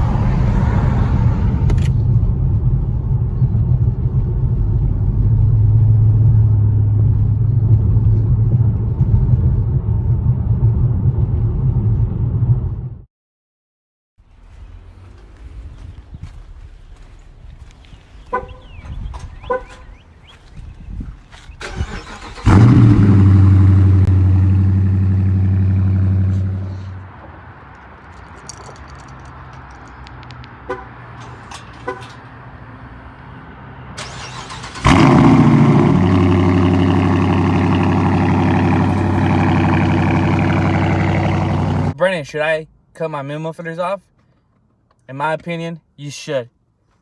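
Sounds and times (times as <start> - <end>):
car engine starting and idling: 0.0 - 13.0, 21.4 - 42.7.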